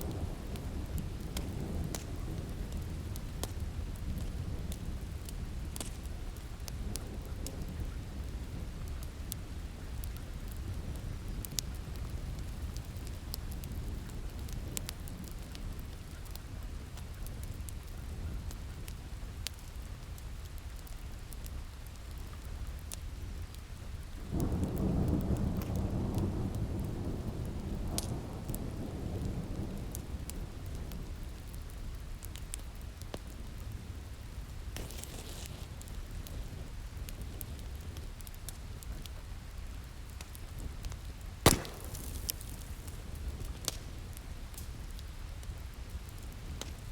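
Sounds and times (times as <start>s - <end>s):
wood fire crackling: 0.0s - 46.9s
rain falling: 23.5s - 46.9s.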